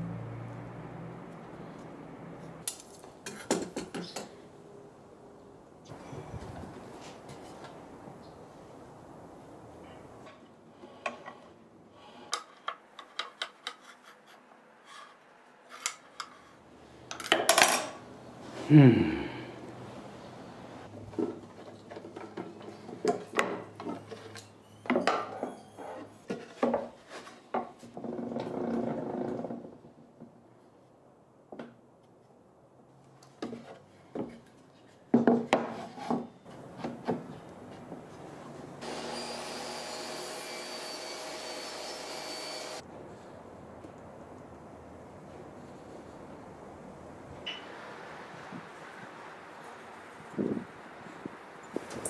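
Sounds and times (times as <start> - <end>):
wood scraping and clattering: 26.3 - 29.8.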